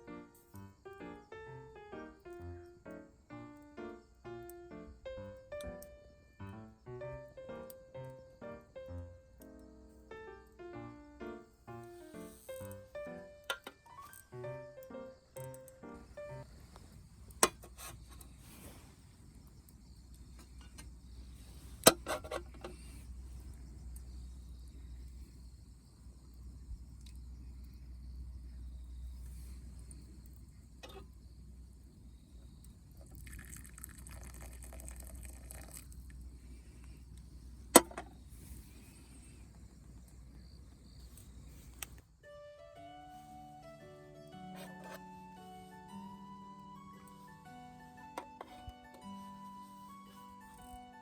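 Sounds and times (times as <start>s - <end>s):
wood fire crackling: 0.0s - 10.6s, 11.2s - 28.3s, 29.0s - 42.1s
sharp pops from fire: 15.3s - 23.1s.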